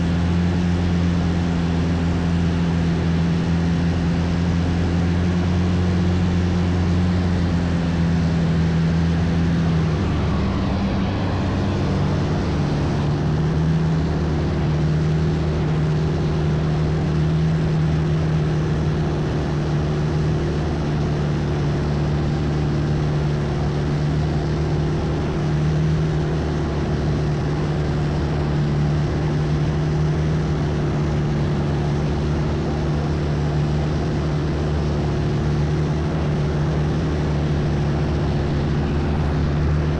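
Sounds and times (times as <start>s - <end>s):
boat engine running: 0.0s - 39.9s
rushing water noise: 0.0s - 39.9s.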